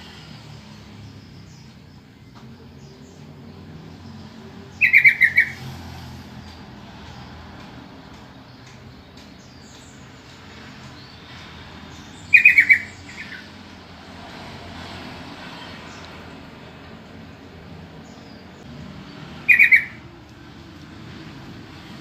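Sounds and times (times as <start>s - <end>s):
bird calling quick notes: 4.8s - 5.6s, 12.3s - 13.5s, 19.4s - 20.0s.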